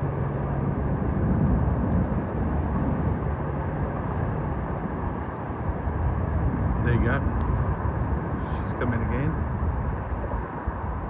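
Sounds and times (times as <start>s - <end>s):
engine rumble: 0.0s - 11.0s.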